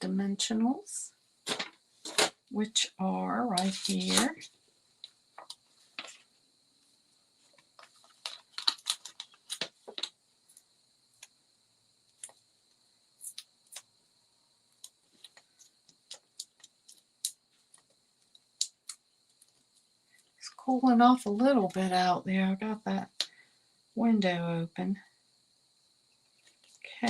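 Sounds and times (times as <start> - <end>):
paper-crafting supplies clicking and tapping: 7.8 - 10.2, 15.2 - 17.9.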